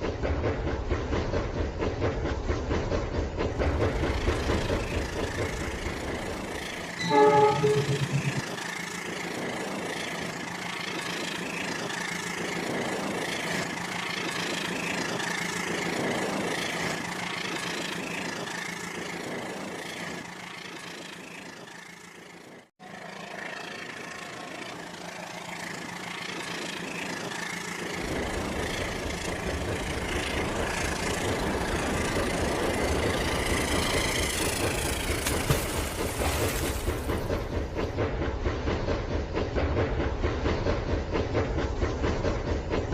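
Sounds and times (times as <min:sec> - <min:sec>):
toy train whirring and rattling: 0:03.1 - 0:38.0
electronic train horn: 0:07.0 - 0:08.6.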